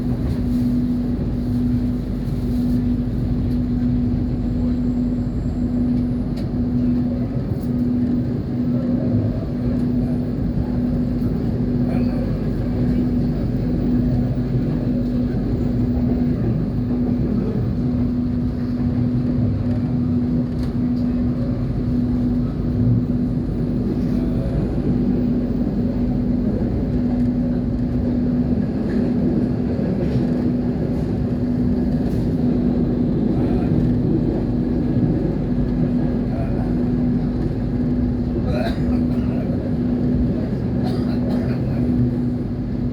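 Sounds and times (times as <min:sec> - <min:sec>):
constant hum: 0:00.0 - 0:42.9
train rumbling at speed: 0:00.0 - 0:42.9.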